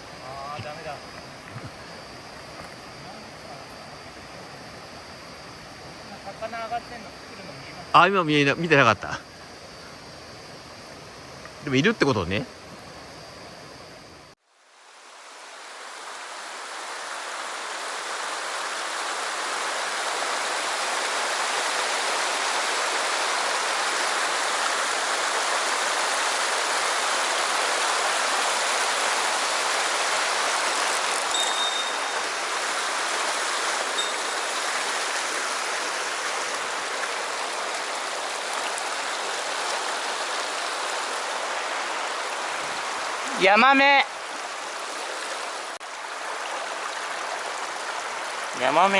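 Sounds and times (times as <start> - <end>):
stream flowing: 0.0 - 12.7, 14.5 - 48.9.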